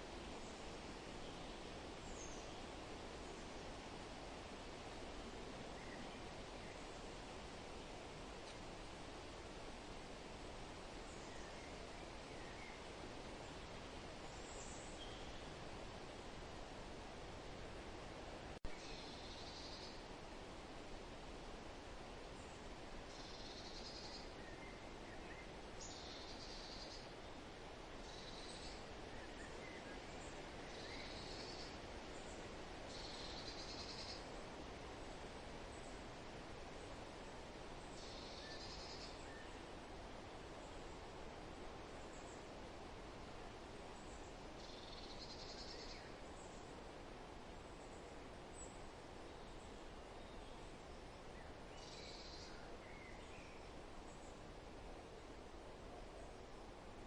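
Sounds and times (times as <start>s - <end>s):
rustling hiss of leaves: 0.0s - 57.0s
faint bird chirps: 14.2s - 15.6s, 18.7s - 20.0s, 23.1s - 27.4s, 28.0s - 34.4s, 37.8s - 39.7s, 43.9s - 46.7s, 47.8s - 54.4s.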